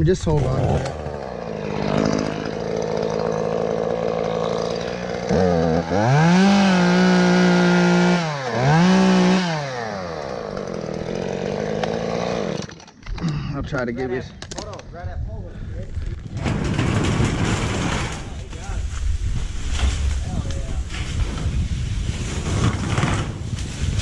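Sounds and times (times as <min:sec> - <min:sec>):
chainsaw running and revving: 0:00.3 - 0:12.9.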